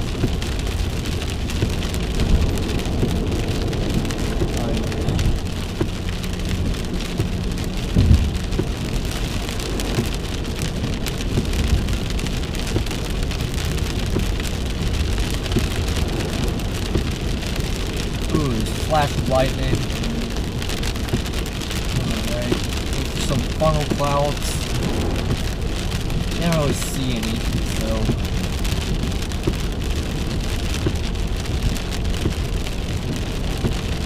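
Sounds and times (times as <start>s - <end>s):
heavy rain on car roof: 0.0s - 34.0s
low road rumble: 0.0s - 34.0s
heavy low thump: 1.6s - 8.7s, 24.6s - 28.3s.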